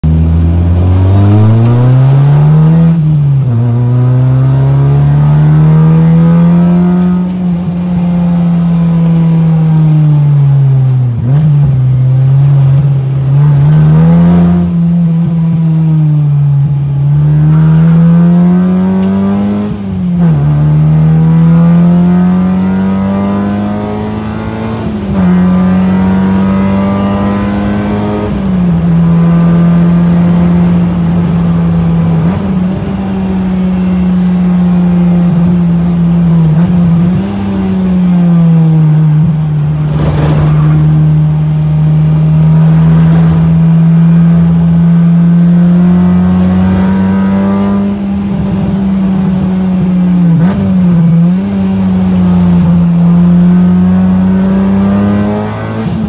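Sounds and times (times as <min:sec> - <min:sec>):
car engine revving through gears: 0:00.0 - 0:56.0.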